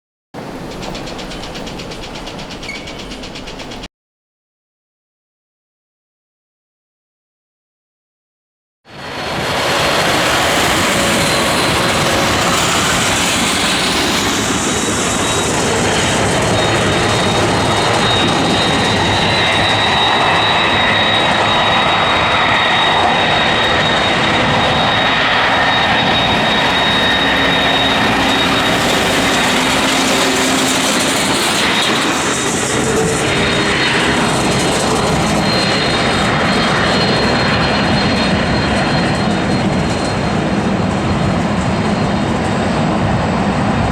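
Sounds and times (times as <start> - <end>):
jet airliner engine roar: 0.4 - 3.9, 8.9 - 43.9
high-pitched engine whine: 8.9 - 43.9.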